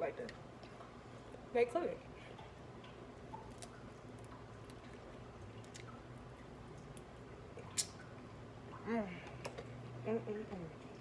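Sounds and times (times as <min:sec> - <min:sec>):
low steady hum: 0:00.0 - 0:11.0
person chewing: 0:03.4 - 0:06.0.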